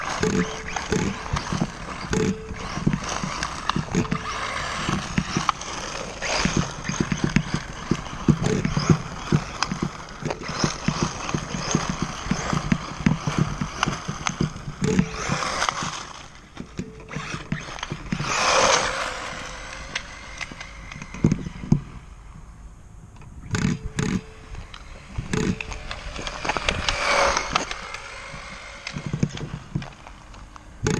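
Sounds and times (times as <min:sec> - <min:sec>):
rc buggy chassis rattling: 0:00.0 - 0:22.3, 0:23.2 - 0:30.9
rushing noise: 0:24.3 - 0:30.3.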